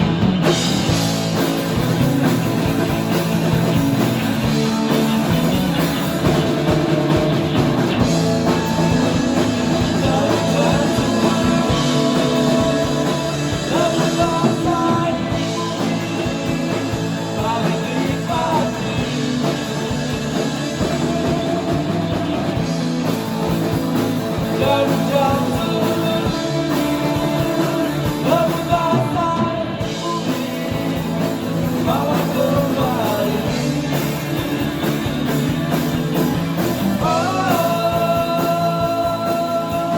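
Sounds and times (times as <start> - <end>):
live rock band playing: 0.0 - 39.9
person singing: 8.4 - 19.5, 24.4 - 31.1, 31.7 - 34.4, 37.0 - 39.9.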